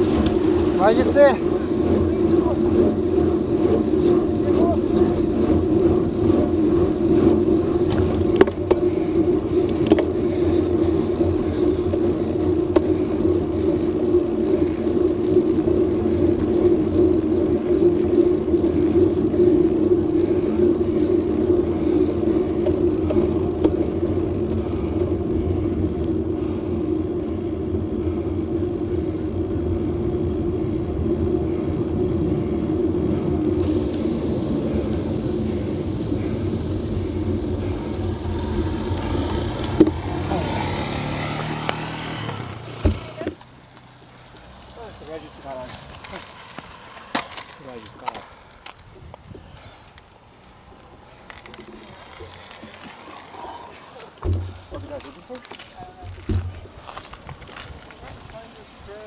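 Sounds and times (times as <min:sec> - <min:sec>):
bicycle rolling on road: 0:00.0 - 0:59.0
wind on microphone: 0:48.8 - 0:49.7.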